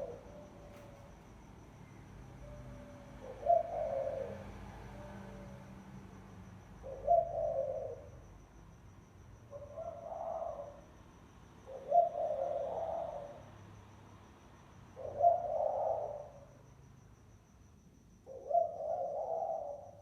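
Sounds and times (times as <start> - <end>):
dove cooing: 0.0 - 1.3, 2.2 - 5.8, 6.8 - 8.2, 9.5 - 10.8, 11.6 - 13.5, 15.0 - 16.5, 18.3 - 20.0.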